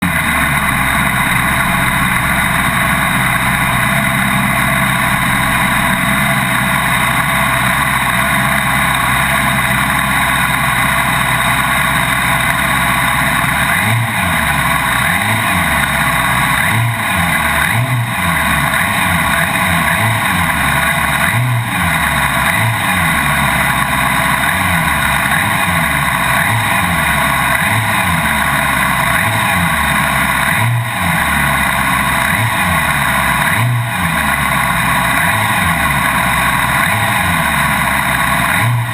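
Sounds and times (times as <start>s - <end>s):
motorcycle engine at high revs: 0.0s - 38.9s.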